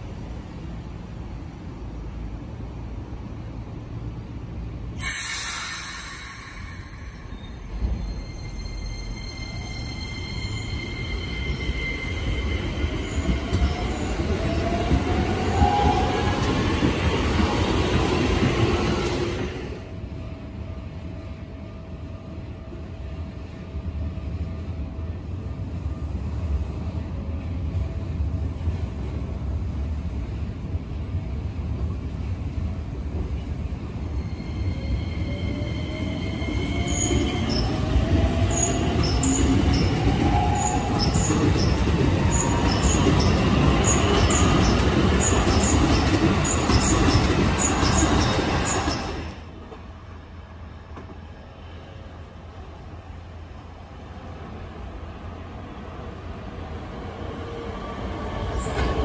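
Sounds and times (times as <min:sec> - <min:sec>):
electric train rumble: 0:00.0 - 0:59.0.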